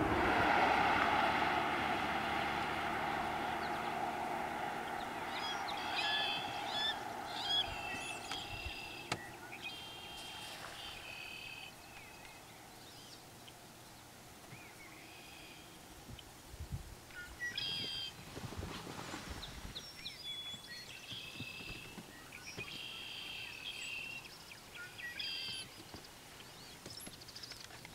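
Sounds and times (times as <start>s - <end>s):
engine drone: 0.0s - 12.8s
marsh birds calling: 4.6s - 13.2s.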